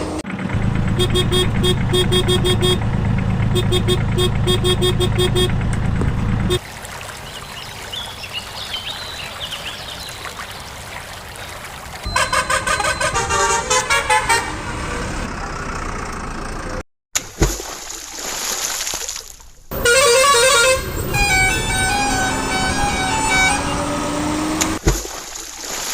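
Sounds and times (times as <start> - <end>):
vehicle horn toots: 0.9 - 2.9, 3.5 - 5.6, 12.1 - 14.9, 19.7 - 24.2.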